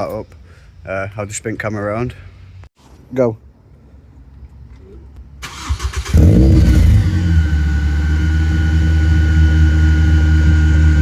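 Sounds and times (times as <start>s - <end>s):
car engine starting and idling: 4.4s - 11.0s.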